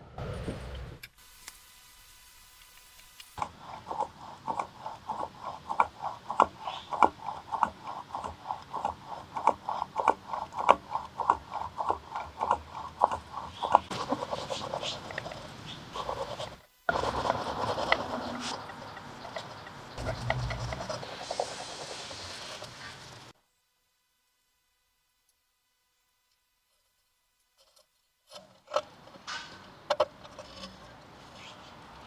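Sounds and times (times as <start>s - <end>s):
hand tool rubbing on wood: 1.0s - 23.2s.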